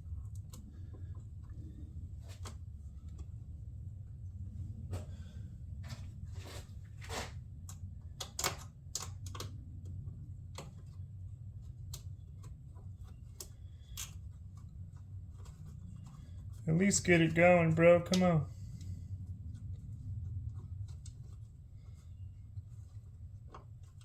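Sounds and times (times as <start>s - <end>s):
steady low hum: 0.0s - 24.0s
small metallic clicks and taps: 7.6s - 11.0s, 11.7s - 16.2s.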